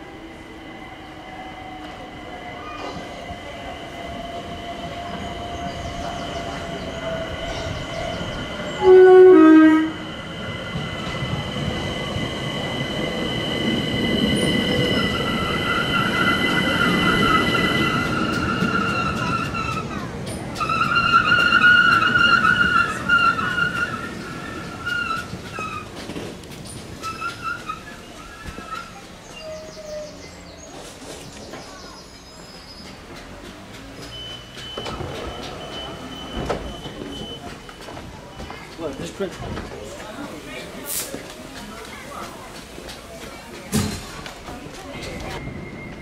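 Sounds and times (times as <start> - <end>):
train running: 0.0 - 46.0
high-pitched wheel squeal: 4.4 - 19.9
two-note train horn: 8.8 - 10.0.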